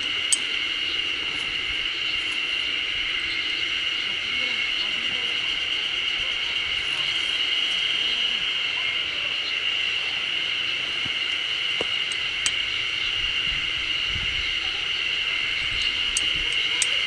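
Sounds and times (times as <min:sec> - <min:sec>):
insects droning: 0:00.0 - 0:17.0
faint clicks: 0:16.1 - 0:17.0.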